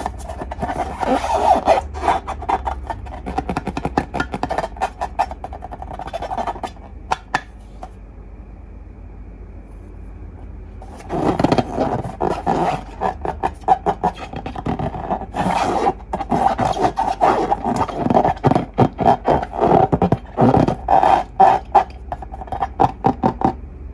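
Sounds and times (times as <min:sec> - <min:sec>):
rubbery squeaks and scrapes: 0:00.0 - 0:07.9, 0:10.8 - 0:23.6.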